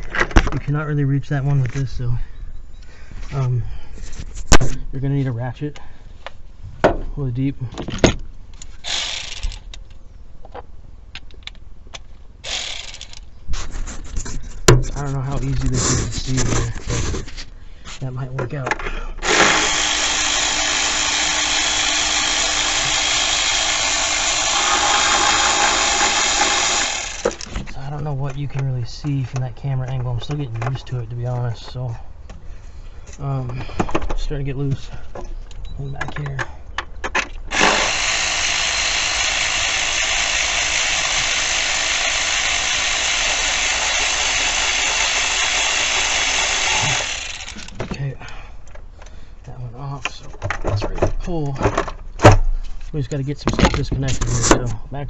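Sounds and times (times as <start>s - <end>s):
power tool running: 8.8s - 9.7s, 12.4s - 13.3s, 19.2s - 27.6s, 37.5s - 47.8s.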